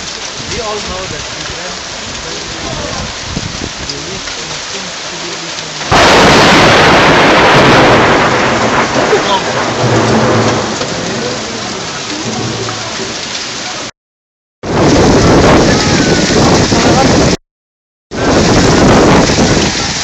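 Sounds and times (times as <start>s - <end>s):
heavy rain pouring: 0.0s - 14.0s, 14.6s - 17.4s, 18.1s - 20.0s
thunder rumbling: 5.9s - 13.9s, 14.6s - 17.4s, 18.1s - 20.0s.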